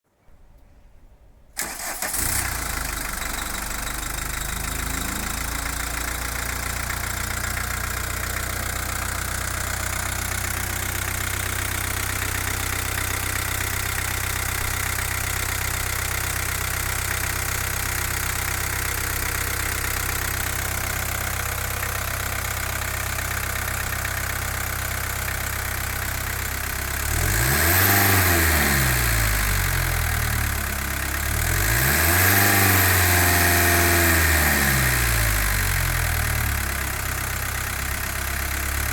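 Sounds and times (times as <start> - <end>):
diesel engine idling and revving: 1.6 - 38.9.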